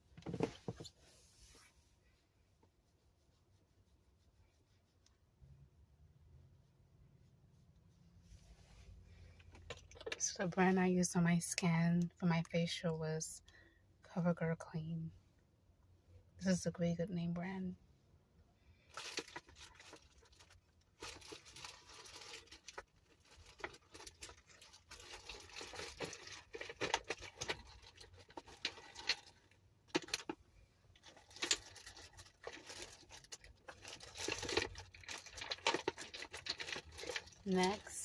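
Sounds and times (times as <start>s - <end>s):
makeup products rustling and clicking: 0.1s - 1.0s, 9.3s - 10.6s, 19.0s - 38.0s.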